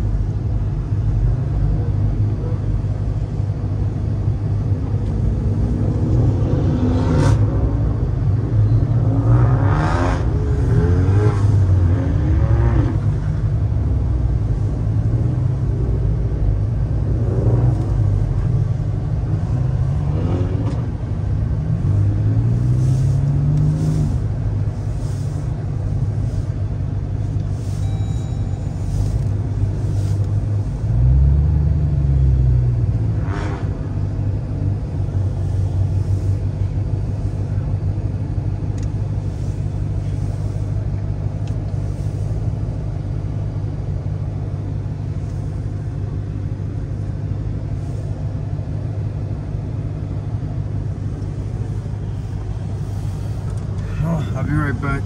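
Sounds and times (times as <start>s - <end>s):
car engines idling: 0.0s - 55.0s
engine revving: 5.1s - 13.5s, 14.8s - 26.5s, 27.3s - 34.2s.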